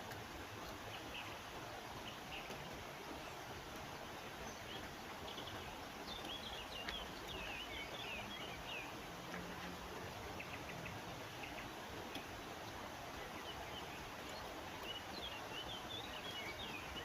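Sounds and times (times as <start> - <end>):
wild birds chirping: 0.0 - 17.0.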